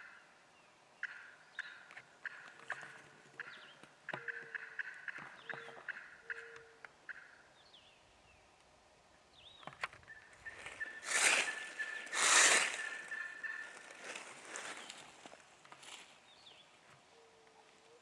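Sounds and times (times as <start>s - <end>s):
songbird chirps: 0.0s - 18.0s
turkey gobbling: 1.0s - 7.4s, 10.1s - 14.9s.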